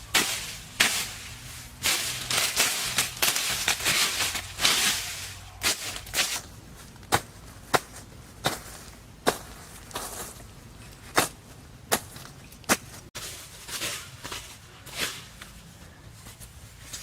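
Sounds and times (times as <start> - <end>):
rough scraping: 0.0 - 12.1.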